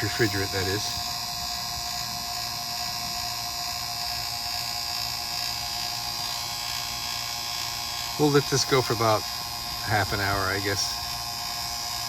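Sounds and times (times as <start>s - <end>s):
vacuum pump humming with whine: 0.0s - 12.0s.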